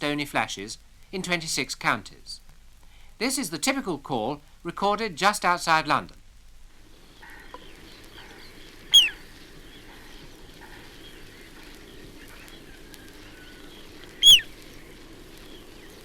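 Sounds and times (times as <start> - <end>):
faint bird calls: 6.9 - 16.0
plover whistle call: 7.2 - 14.6.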